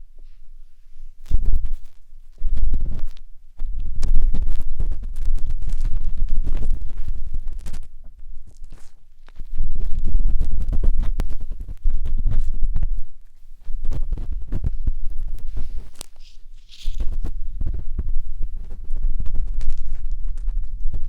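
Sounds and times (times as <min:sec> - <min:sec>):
matchstick scraping on microphone: 0:01.2 - 0:03.2, 0:04.0 - 0:12.8, 0:13.5 - 0:20.6.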